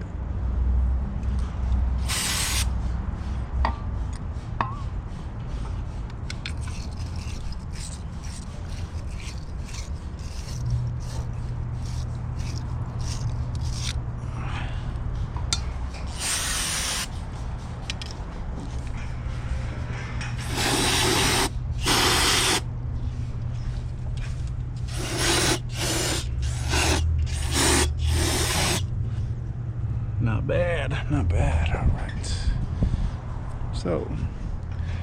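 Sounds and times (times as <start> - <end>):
steady low hum: 0.0 - 35.0
short hissing sprays: 2.0 - 2.7, 16.2 - 17.1, 20.4 - 22.6, 24.9 - 28.8
small parts clicking and rattling: 6.3 - 14.0.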